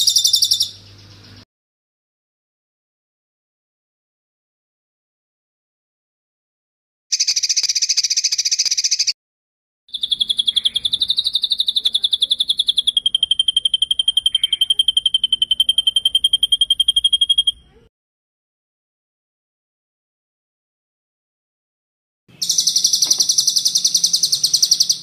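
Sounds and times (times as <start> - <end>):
songbird buzzy rattle: 0.0 - 1.4, 7.1 - 9.1, 9.9 - 17.7, 22.4 - 25.0
songbird rapid trill: 0.0 - 1.4, 7.1 - 9.2, 9.9 - 17.8, 22.3 - 25.0.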